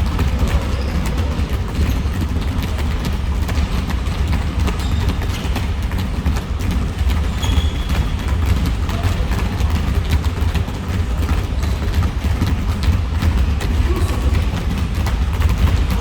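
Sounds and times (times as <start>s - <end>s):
basketball bouncing: 0.0s - 16.0s
running footsteps: 0.0s - 16.0s
sneaker squeak: 0.1s - 2.9s, 4.6s - 6.0s, 7.1s - 9.4s.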